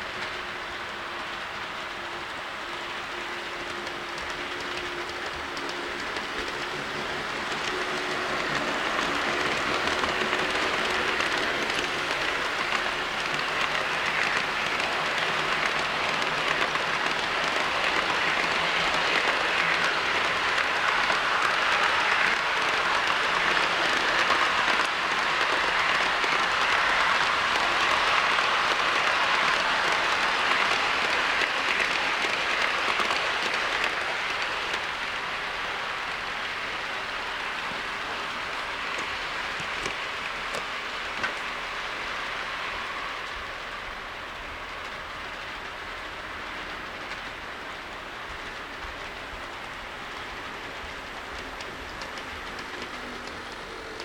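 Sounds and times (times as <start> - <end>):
model train wheels rattling on rail: 3.0 - 42.4.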